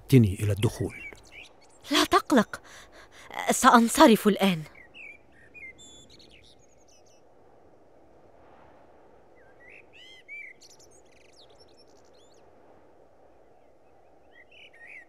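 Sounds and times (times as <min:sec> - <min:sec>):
small birds chirping: 0:00.0 - 0:07.3
whistled bird calls: 0:04.7 - 0:07.2, 0:09.4 - 0:12.4, 0:14.3 - 0:15.0.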